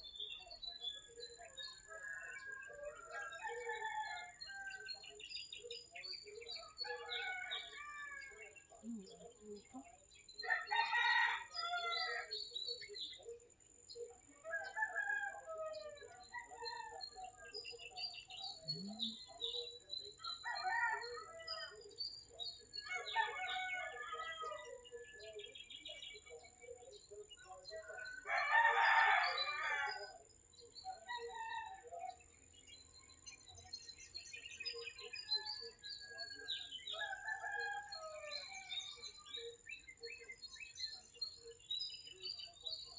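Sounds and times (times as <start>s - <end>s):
small birds chirping: 0.0s - 42.9s
rooster crowing: 6.8s - 8.4s, 10.4s - 12.3s, 22.9s - 24.8s, 28.0s - 30.2s.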